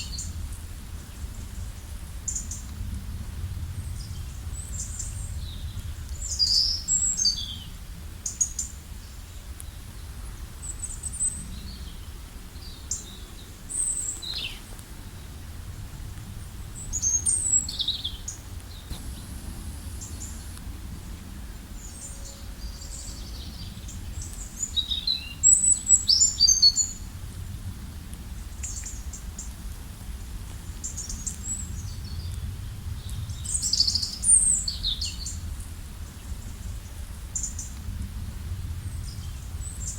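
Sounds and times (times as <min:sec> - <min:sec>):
low background rumble: 0:14.7 - 0:25.2.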